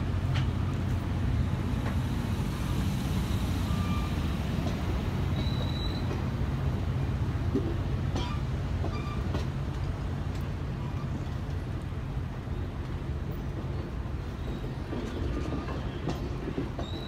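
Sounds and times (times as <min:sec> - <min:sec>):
train wheels rumbling on rails: 0:00.0 - 0:17.0
high wheel squeal: 0:03.6 - 0:04.3, 0:05.3 - 0:06.1.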